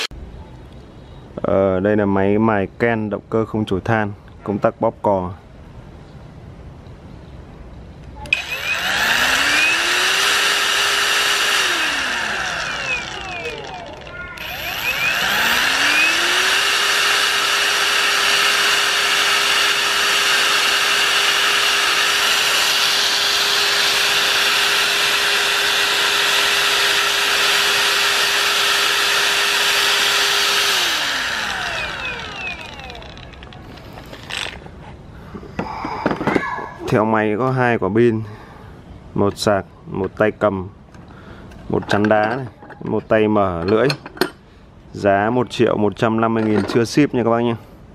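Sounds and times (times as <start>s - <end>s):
angle grinder whining: 8.3s - 34.6s.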